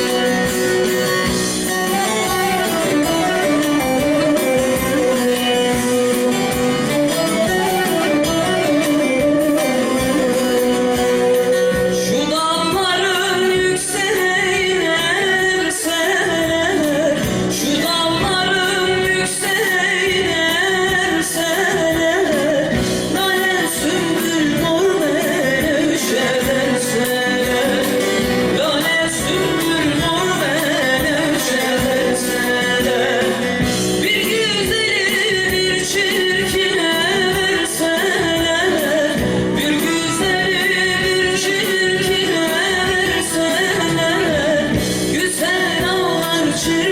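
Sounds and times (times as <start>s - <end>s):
plucked strings: 0.0s - 46.9s
woman singing: 0.0s - 46.9s.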